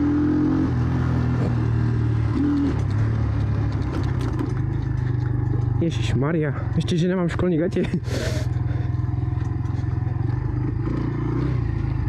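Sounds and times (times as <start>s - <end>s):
motorcycle engine idling: 2.9s - 12.0s.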